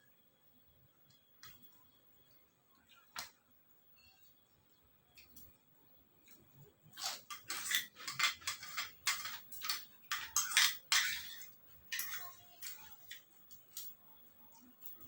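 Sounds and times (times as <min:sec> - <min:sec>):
eating crunches and scrapes: 0:06.9 - 0:14.0.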